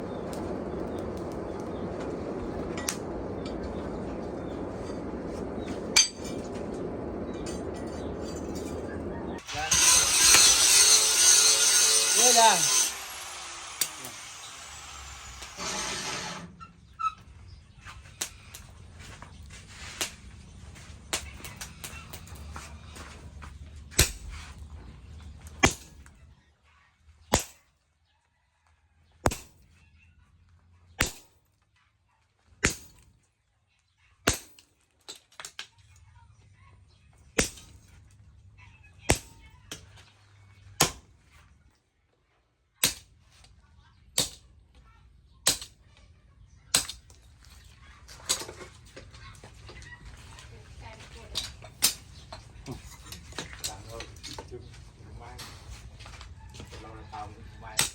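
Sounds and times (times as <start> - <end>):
low hum: 0.0 - 17.0
hammer striking steel on anvil: 5.9 - 6.4, 9.5 - 13.0, 13.8 - 14.2, 39.1 - 39.4.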